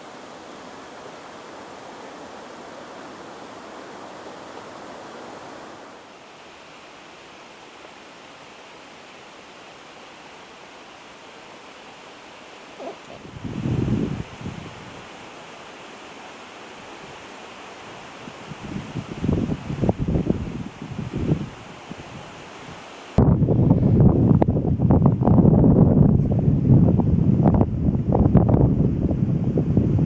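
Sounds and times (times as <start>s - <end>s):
river water rushing: 0.0s - 23.2s
wind buffeting microphone: 12.8s - 15.1s, 18.2s - 22.4s, 23.2s - 30.0s.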